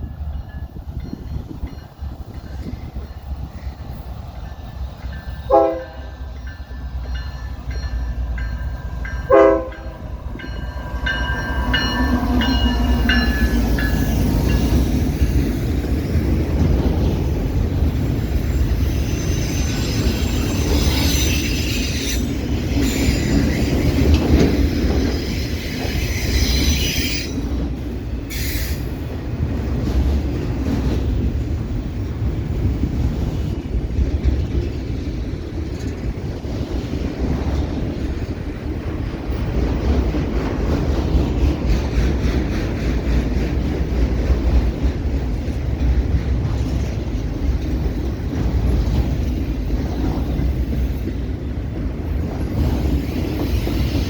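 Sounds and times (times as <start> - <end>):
train rumbling past: 0.0 - 54.0
locomotive horn blasts: 5.5 - 6.2, 9.2 - 10.1
high-pitched wheel squeal: 18.7 - 23.8.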